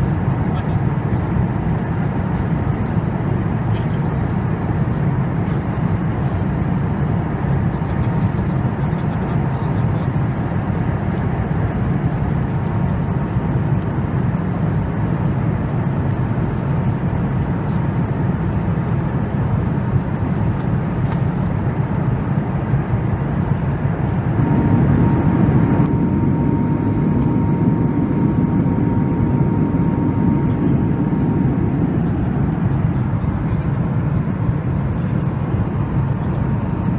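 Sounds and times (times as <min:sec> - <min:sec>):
airliner cabin rush: 0:23.2 - 0:36.9.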